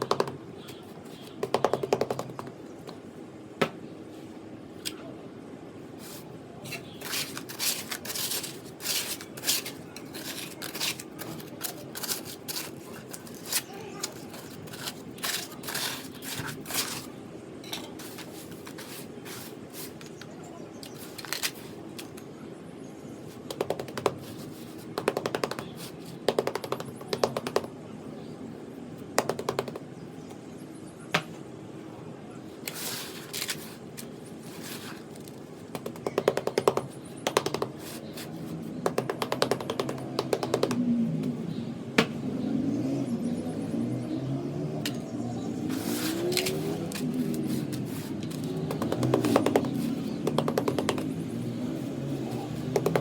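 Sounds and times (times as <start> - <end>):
tapping on sand-cement blocks: 0.0 - 3.0, 6.0 - 22.2, 23.4 - 27.8, 29.2 - 30.4, 32.6 - 40.8, 45.6 - 53.0
gritty rustles: 6.0 - 17.2, 32.6 - 35.5.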